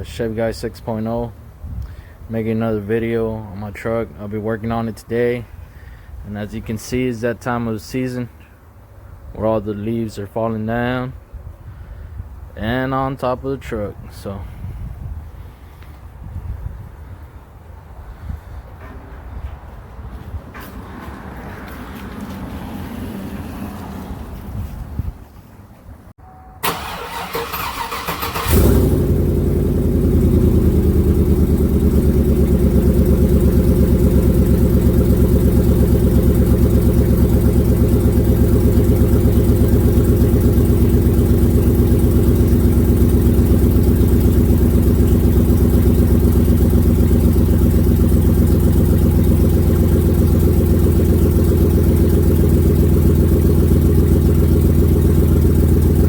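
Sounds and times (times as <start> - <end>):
engine idling: 26.6 - 56.0
starter cranking engine: 26.6 - 56.0.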